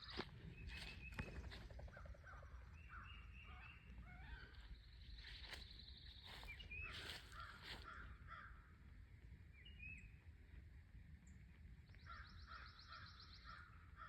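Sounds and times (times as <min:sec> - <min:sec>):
birds chirping: 0:00.0 - 0:08.1.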